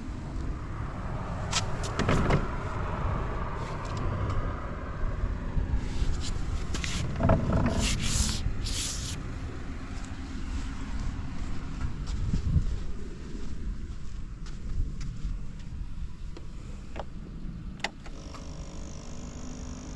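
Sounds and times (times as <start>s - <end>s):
short hissing noises: 7.8s - 9.2s
scooter engine idling: 18.1s - 19.9s.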